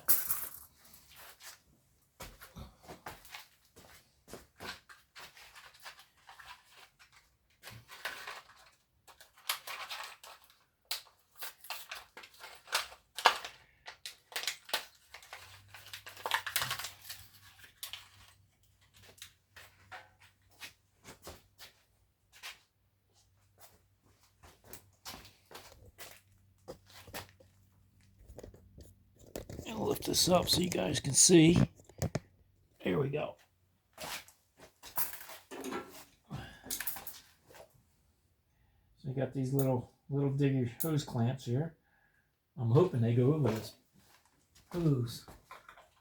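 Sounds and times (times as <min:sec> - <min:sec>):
clicks and scrapes of hand work: 0:28.2 - 0:32.3.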